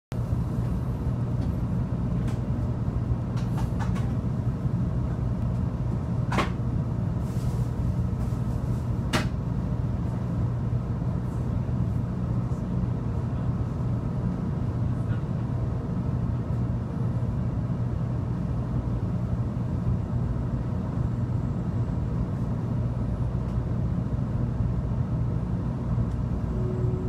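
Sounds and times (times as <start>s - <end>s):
train interior hum and rumble: 0.1s - 27.0s.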